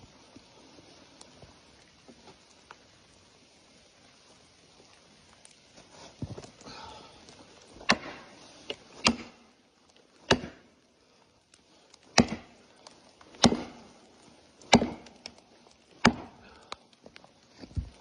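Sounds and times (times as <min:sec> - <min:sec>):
axe chopping into tree: 0:07.8 - 0:08.3, 0:09.0 - 0:09.4, 0:10.2 - 0:10.6, 0:12.1 - 0:12.6, 0:13.4 - 0:13.8, 0:14.7 - 0:15.1, 0:16.0 - 0:16.4.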